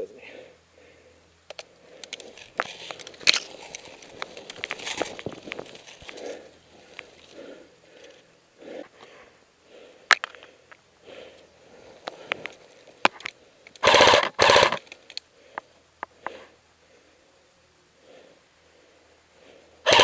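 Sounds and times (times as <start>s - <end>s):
sharp single clicks and knocks: 10.1s - 10.8s
airsoft rifle full-auto bursts: 13.8s - 14.9s.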